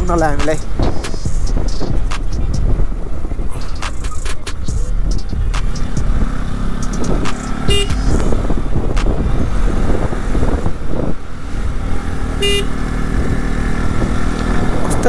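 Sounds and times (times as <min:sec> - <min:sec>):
motorcycle engine running: 0:00.0 - 0:15.0
vehicle horn beeps: 0:07.6 - 0:08.1, 0:12.4 - 0:12.8.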